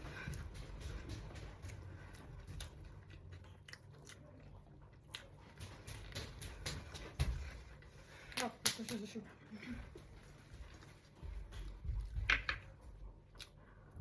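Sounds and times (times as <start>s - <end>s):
person biting and chewing food: 0.0s - 7.2s.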